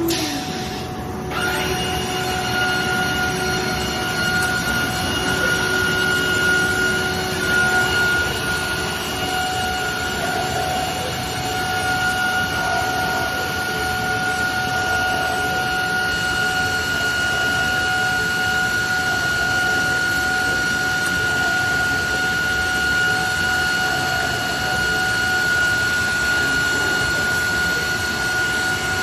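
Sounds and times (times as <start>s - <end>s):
machining centre high whine: 0.0s - 29.0s
mechanical hum: 0.0s - 29.0s.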